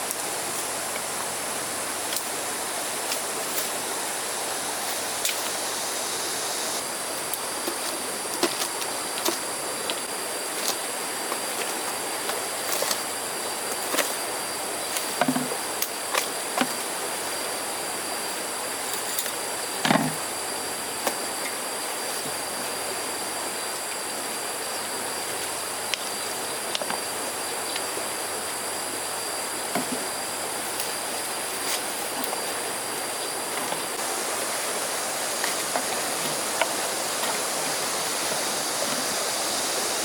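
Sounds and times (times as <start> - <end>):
river water rushing: 0.0 - 13.5, 27.2 - 40.0
faint high insect drone: 0.0 - 40.0.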